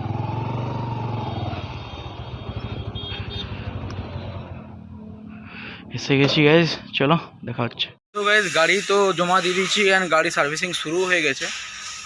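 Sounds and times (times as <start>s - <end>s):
motorcycle engine running: 0.0s - 5.5s.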